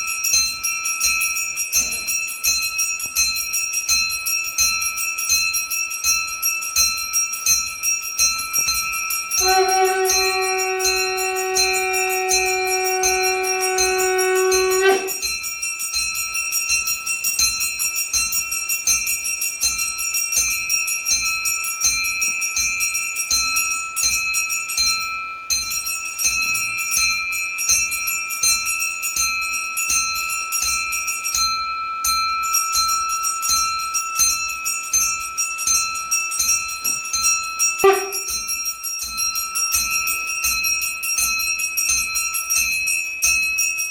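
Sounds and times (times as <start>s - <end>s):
puja bell ringing rapidly: 0.0s - 43.9s
conch shell blast: 9.4s - 15.3s, 37.8s - 38.4s.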